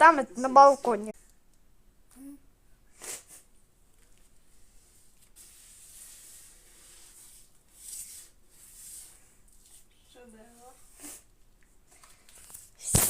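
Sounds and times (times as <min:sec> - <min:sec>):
glue being mixed rustling: 0:03.8 - 0:13.0.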